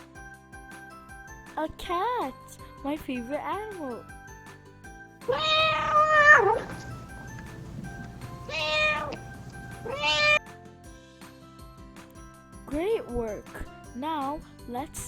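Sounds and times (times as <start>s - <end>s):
cat meowing: 5.2s - 7.2s, 8.3s - 10.4s.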